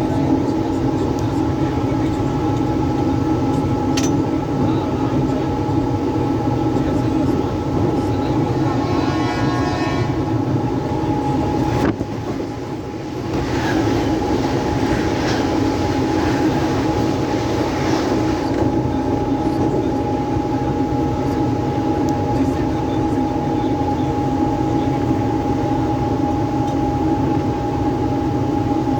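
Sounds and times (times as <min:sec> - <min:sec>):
train rumbling on rails: 0:00.0 - 0:28.9
horn-like tone: 0:08.5 - 0:10.4.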